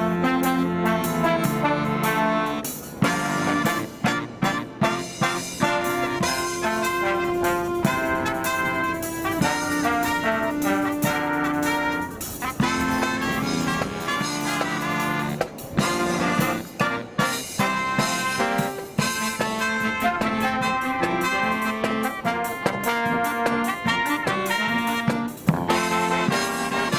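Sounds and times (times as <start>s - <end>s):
marching brass band playing: 0.0s - 26.9s
sharp drum strokes: 1.1s - 22.4s.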